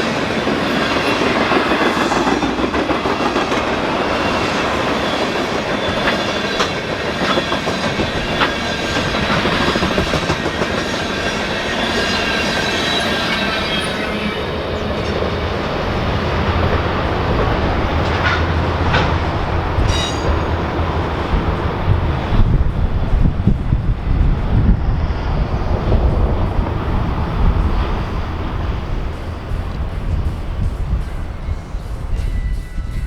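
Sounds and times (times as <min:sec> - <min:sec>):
train wheels clicking over rail joints: 0:00.4 - 0:13.5, 0:15.9 - 0:23.6
heavy low rumble: 0:15.4 - 0:31.6
high-pitched wheel ringing: 0:19.8 - 0:20.6.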